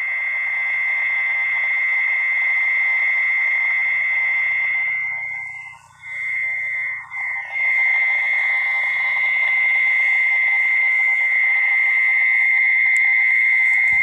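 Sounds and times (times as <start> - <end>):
frogs or insects calling: 0.0 - 12.4.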